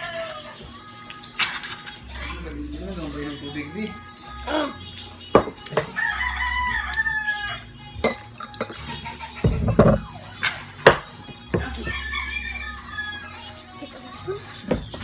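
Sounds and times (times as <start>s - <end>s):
rooster crowing: 0.0s - 0.7s, 5.8s - 7.8s, 11.6s - 13.7s.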